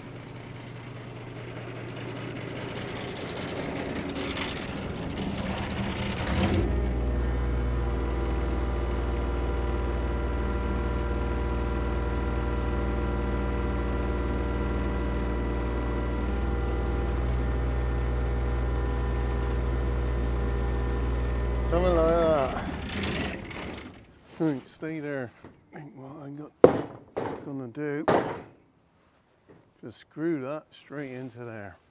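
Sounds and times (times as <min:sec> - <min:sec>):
machine engine running: 0:00.0 - 0:24.4.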